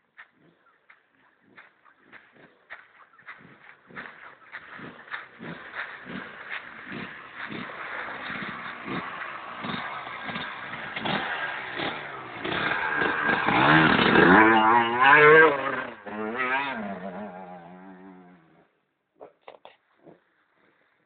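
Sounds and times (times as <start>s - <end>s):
motorcycle engine revving hard: 3.3s - 18.6s.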